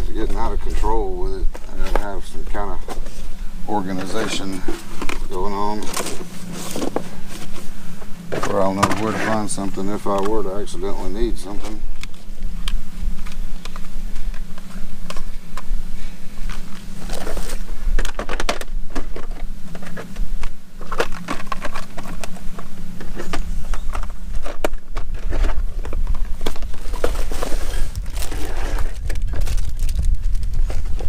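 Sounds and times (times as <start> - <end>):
steady low hum: 0.0 - 31.0
tools handled and sorted: 1.5 - 7.7, 8.3 - 12.3, 16.5 - 31.0.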